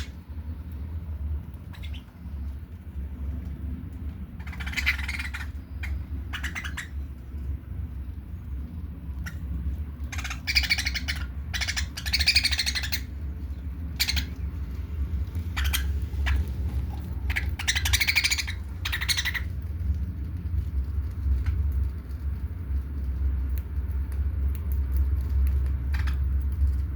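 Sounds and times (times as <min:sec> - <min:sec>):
steady low rumble: 0:00.0 - 0:26.9
budgerigars squawking: 0:01.7 - 0:02.1, 0:04.4 - 0:07.0, 0:10.1 - 0:13.2, 0:13.9 - 0:14.4, 0:15.5 - 0:19.5.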